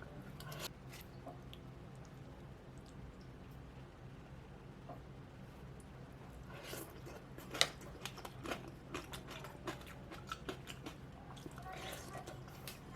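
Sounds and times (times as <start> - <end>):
faint low hum: 0.0 - 12.9
crunchy chewing: 6.4 - 12.9.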